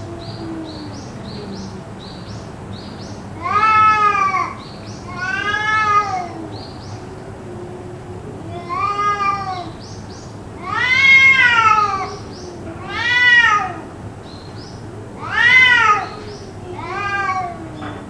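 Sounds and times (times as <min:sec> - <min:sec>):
cat yowling: 0:03.4 - 0:06.6, 0:08.4 - 0:09.8, 0:10.6 - 0:13.9, 0:15.2 - 0:17.8.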